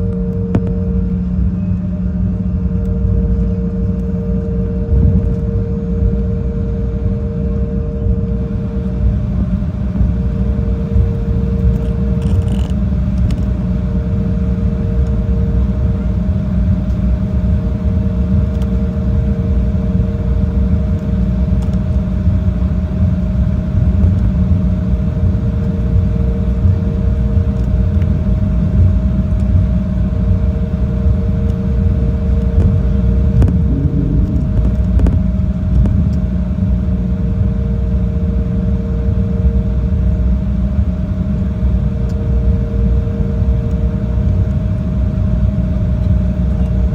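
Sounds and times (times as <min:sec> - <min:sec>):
jet engine and airflow rumble: 0:00.0 - 0:46.9
lower hum: 0:00.0 - 0:46.9
steady hum: 0:00.0 - 0:46.9.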